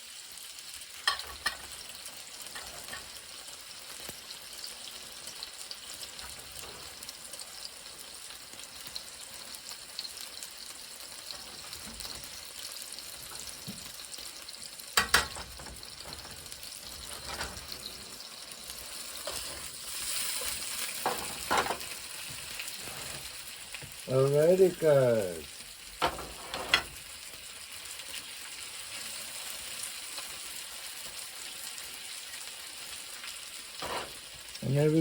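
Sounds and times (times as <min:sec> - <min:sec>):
food sizzling in a frying pan: 0:00.0 - 0:35.0
utensil clanking against pan: 0:01.0 - 0:01.7, 0:02.5 - 0:03.1, 0:15.0 - 0:17.9, 0:21.0 - 0:21.9.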